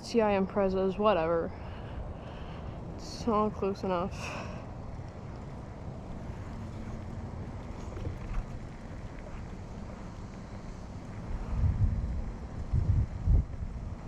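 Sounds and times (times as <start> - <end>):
dirt bike engine running: 3.3 - 14.0
wind on microphone: 5.7 - 14.0.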